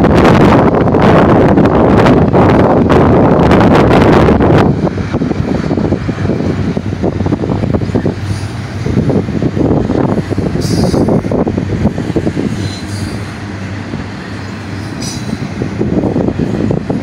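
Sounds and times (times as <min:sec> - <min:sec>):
steel wheels rumbling on rail: 0:00.0 - 0:17.0
high-pitched wheel squeals: 0:12.6 - 0:13.3.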